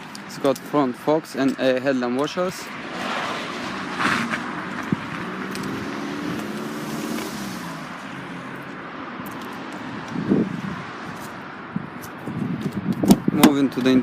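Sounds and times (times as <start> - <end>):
car engine passing by: 2.7 - 12.6.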